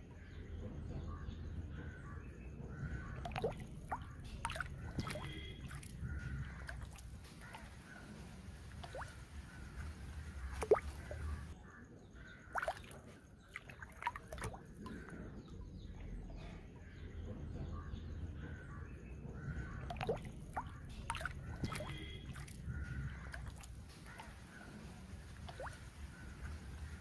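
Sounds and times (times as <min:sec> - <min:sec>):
water dripping and sloshing: 0:02.6 - 0:11.6, 0:12.4 - 0:16.4, 0:19.3 - 0:27.0.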